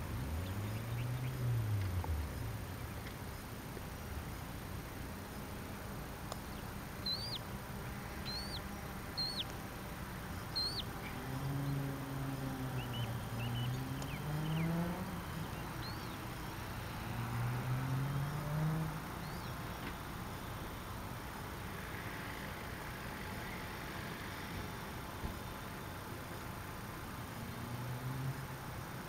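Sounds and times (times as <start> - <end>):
small birds chirping: 0.0 - 23.8
vehicle engine running: 0.0 - 29.0.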